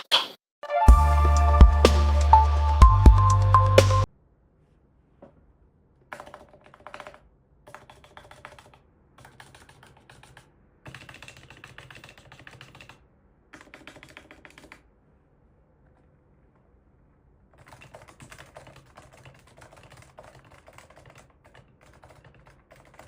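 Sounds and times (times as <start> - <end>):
keyboard typing: 6.1 - 14.9, 17.5 - 23.0.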